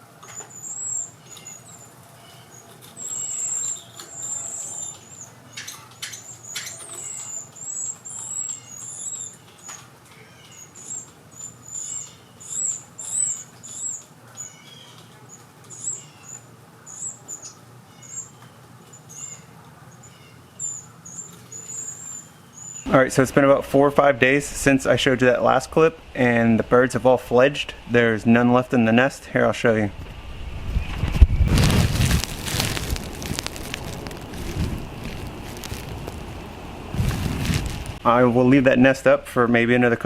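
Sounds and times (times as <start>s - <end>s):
nestlings begging chirps: 0.0s - 22.9s, 30.8s - 38.2s
rustles: 0.0s - 22.9s, 30.0s - 38.2s.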